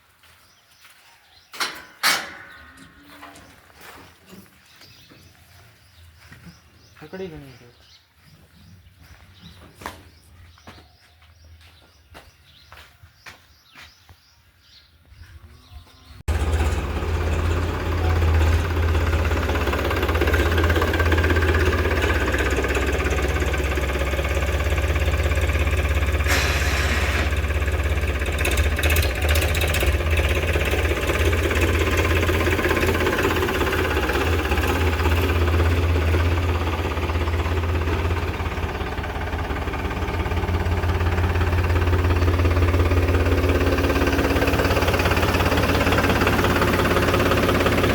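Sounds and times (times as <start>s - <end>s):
tractor diesel engine running: 1.7s - 7.7s, 16.2s - 47.9s.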